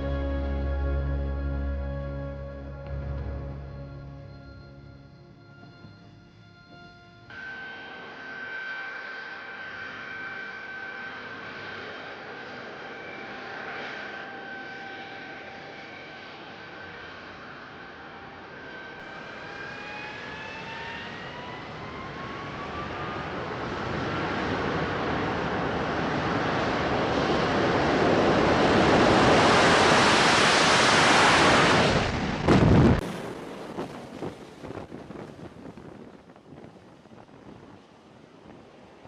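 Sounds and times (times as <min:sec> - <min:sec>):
jet engine turbine whine: 0:00.0 - 0:39.0
wind on microphone: 0:21.9 - 0:39.0
sea noise: 0:28.1 - 0:35.6.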